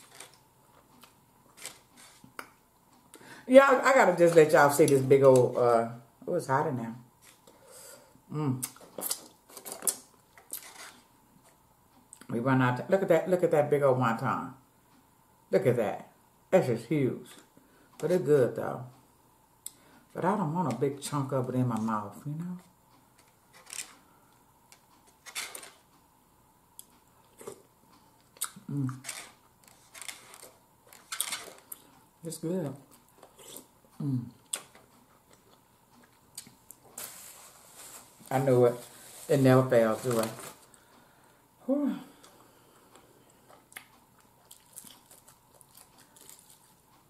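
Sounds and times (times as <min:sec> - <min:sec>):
person humming mmm: 0:33.4 - 0:34.4
chewing and mouth sounds: 0:43.3 - 0:46.8.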